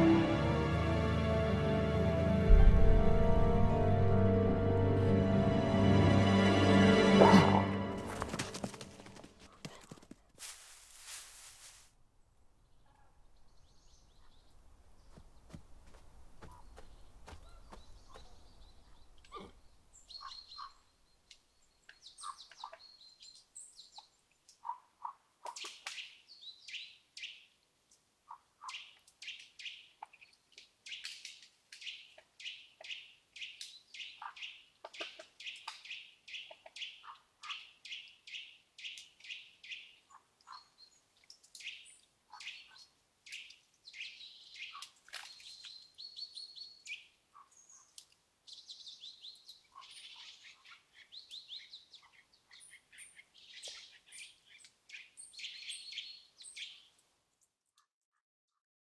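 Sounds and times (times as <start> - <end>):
birds chirping and trilling: 12.7 - 15.6, 16.4 - 27.6, 31.8 - 57.0.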